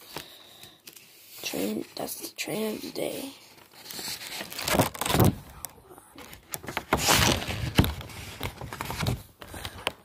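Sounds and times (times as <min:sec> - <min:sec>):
rustling and bumping handling noise: 0:03.5 - 0:10.0.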